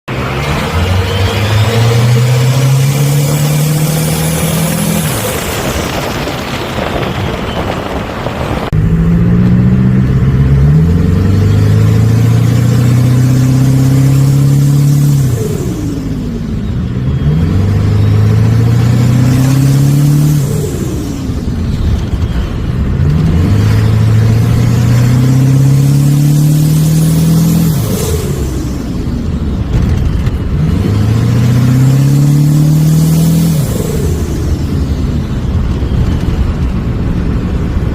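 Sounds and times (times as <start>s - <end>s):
diesel engine revving: 0.0s - 37.9s
turbo whistling: 0.2s - 8.2s.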